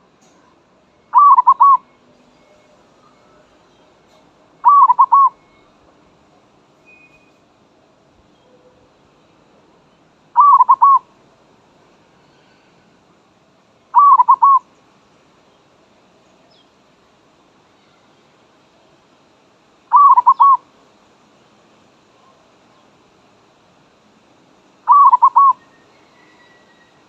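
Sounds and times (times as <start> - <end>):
dove cooing: 1.1 - 1.8, 4.6 - 5.4, 10.4 - 11.0, 14.0 - 14.6, 19.9 - 20.6, 24.9 - 25.6.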